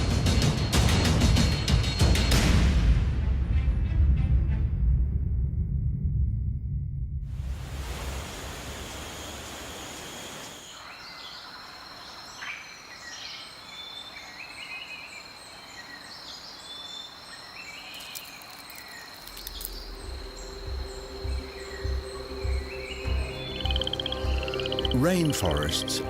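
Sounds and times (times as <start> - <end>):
insect drone: 6.0 - 25.7
birds calling: 10.5 - 26.0.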